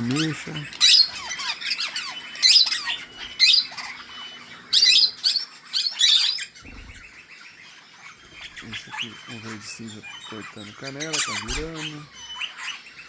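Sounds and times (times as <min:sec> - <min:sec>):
parakeets squawking: 0:00.0 - 0:13.0.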